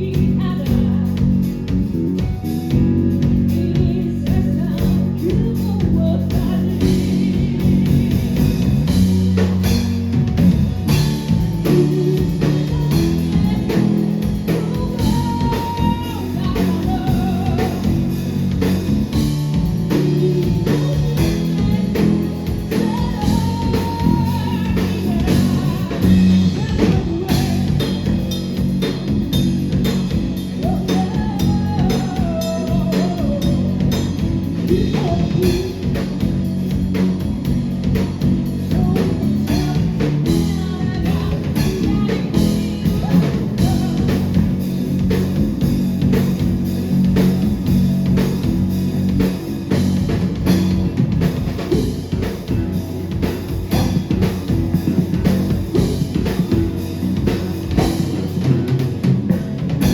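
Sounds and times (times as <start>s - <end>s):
rock band playing live: 0.0s - 59.9s
person singing: 10.9s - 18.7s, 19.7s - 28.3s, 30.5s - 36.2s, 38.6s - 44.7s.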